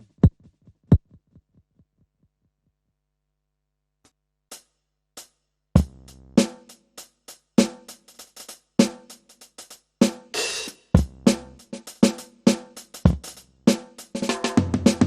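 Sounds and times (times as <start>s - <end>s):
electronic drum beat: 5.8s - 15.0s.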